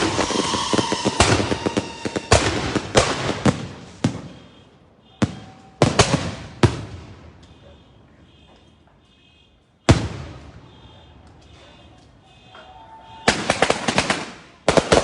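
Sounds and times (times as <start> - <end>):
fireworks crackling: 0.0 - 4.6, 9.9 - 15.0
firework bangs: 0.0 - 7.6, 9.8 - 15.0.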